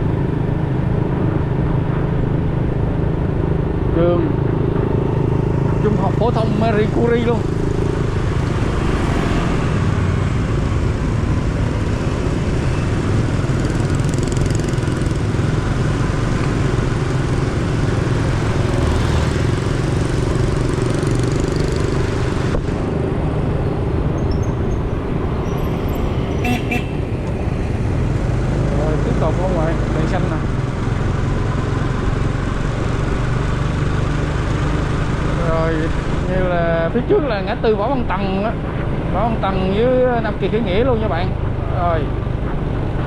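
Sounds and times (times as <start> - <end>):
motorcycle engine running: 0.6 - 36.9.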